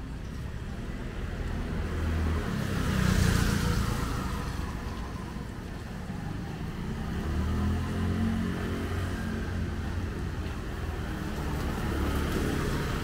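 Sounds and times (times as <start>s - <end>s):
steady low traffic rumble: 0.0s - 13.0s
vehicle passing: 1.5s - 5.8s, 6.5s - 13.0s.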